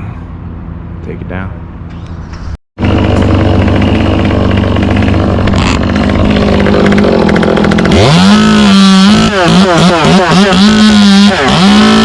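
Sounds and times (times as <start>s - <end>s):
chainsaw idling and revving: 2.8s - 12.0s.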